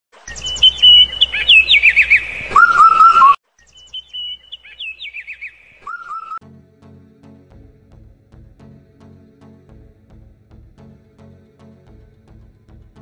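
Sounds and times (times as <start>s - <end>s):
bird whistling song: 0.2s - 6.4s.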